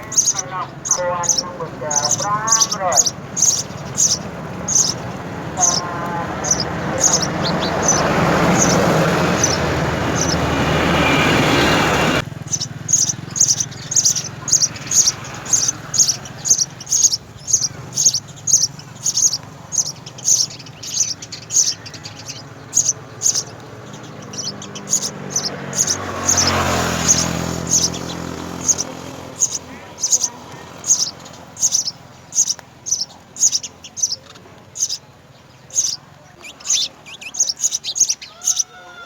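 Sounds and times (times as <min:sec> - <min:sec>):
loud rushing noise: 0:00.0 - 0:17.4
sparrows chirping: 0:00.0 - 0:39.0.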